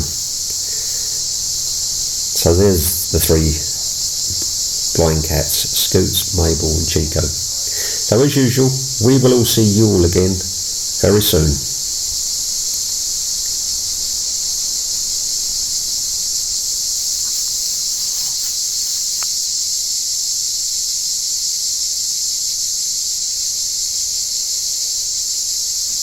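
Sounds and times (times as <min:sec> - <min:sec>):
cicadas singing: 0:00.0 - 0:26.0.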